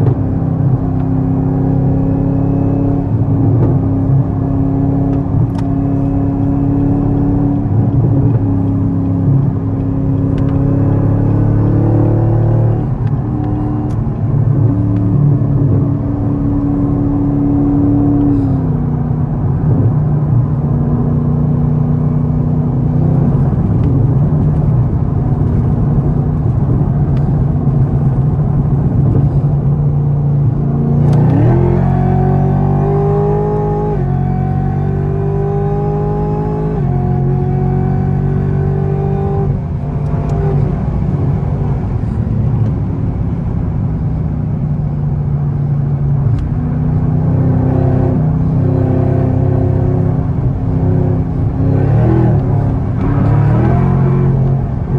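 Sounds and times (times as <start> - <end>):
car engine revving and upshifting: 0.0 - 54.9.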